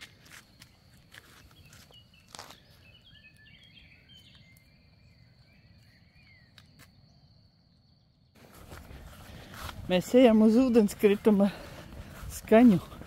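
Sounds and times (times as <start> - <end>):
small bird twittering: 1.3 - 7.3.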